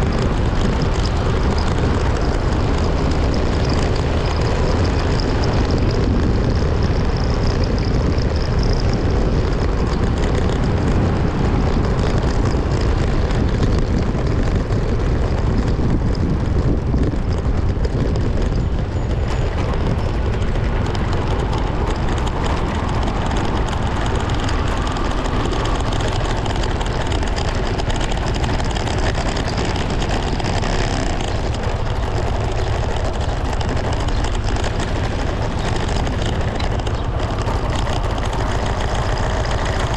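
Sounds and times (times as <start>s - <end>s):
road rush: 0.0s - 39.9s
vehicle engine noise: 0.0s - 39.9s
wind: 0.0s - 39.9s.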